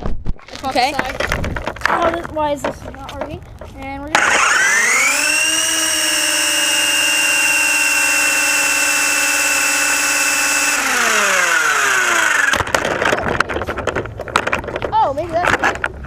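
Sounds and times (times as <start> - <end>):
helicopter motor and rotor whine: 4.1 - 12.7.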